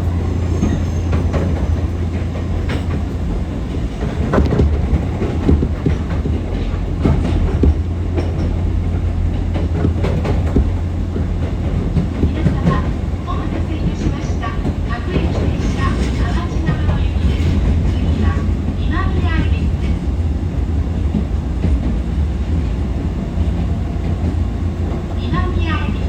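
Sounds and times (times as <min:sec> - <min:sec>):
wheels clacking over rail joints: 0:00.0 - 0:20.0
electric train rumbling: 0:00.0 - 0:26.0.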